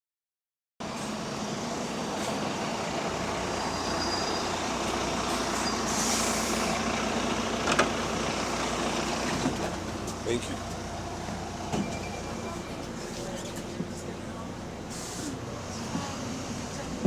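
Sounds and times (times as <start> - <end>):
diesel bus engine running: 0.8 - 17.0
air hiss: 14.9 - 15.4.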